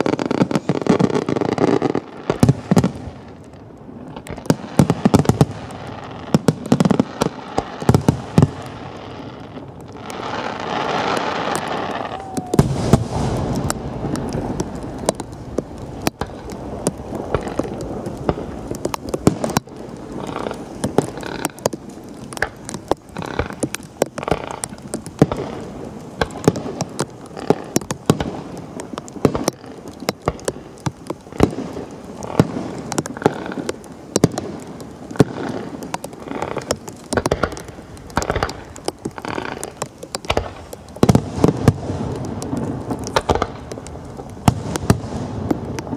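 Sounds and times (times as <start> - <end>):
fireworks bangs and crackles: 0.0 - 45.9.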